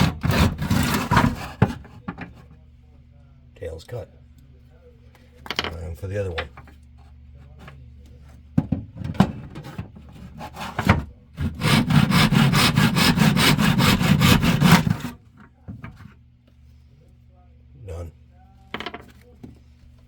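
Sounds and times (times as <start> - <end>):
hand saw strokes: 0.0 - 1.6, 10.3 - 15.2.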